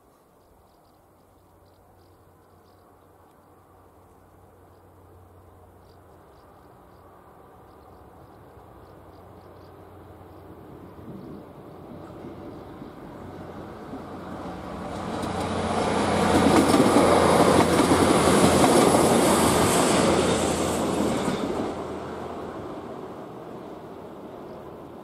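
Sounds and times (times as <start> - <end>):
train wheels running on rails: 8.2 - 25.0.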